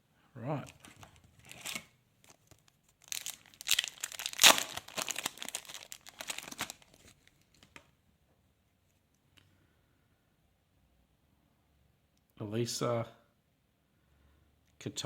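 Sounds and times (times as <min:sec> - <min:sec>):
card pack wrapper tearing and crinkling: 0:00.6 - 0:07.8.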